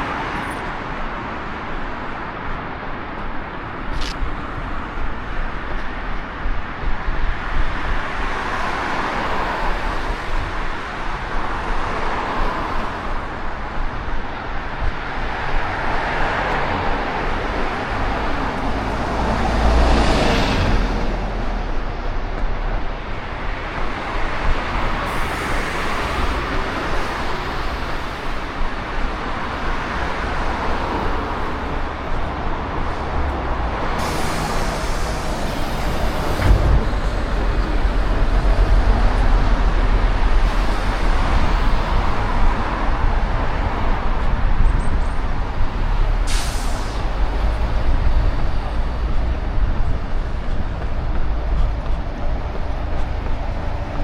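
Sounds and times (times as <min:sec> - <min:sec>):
traffic rumble: 0:00.0 - 0:54.0
air brakes hissing: 0:25.0 - 0:26.4, 0:33.8 - 0:37.6, 0:46.0 - 0:48.0.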